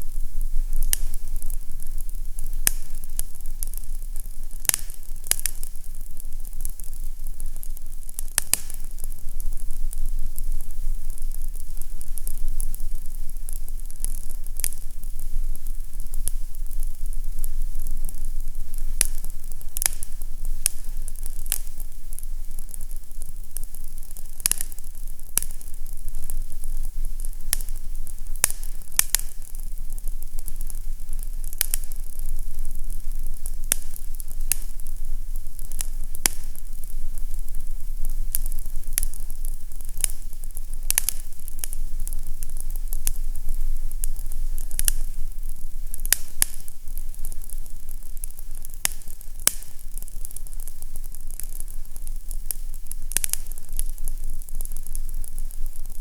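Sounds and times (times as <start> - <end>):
fire crackling and popping: 0.0 - 56.0
steady low hum: 0.0 - 56.0.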